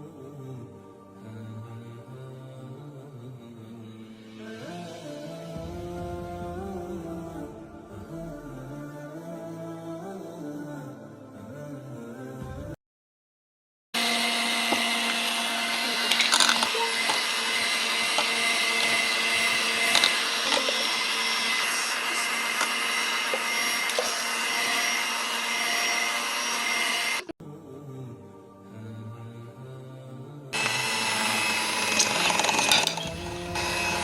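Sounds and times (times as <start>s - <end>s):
kitchen mixer motor whining: 14.0s - 27.4s, 30.6s - 34.0s.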